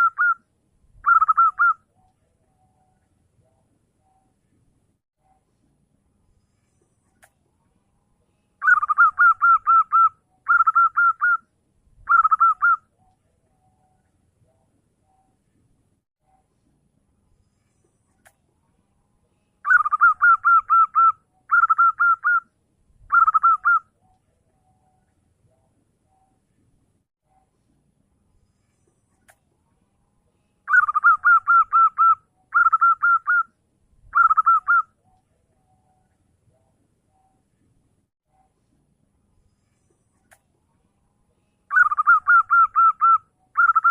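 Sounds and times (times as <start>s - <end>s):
dove cooing: 1.0s - 1.8s, 8.6s - 11.4s, 12.1s - 12.8s, 19.7s - 22.4s, 23.1s - 23.8s, 30.7s - 33.4s, 34.2s - 34.8s, 41.7s - 43.9s.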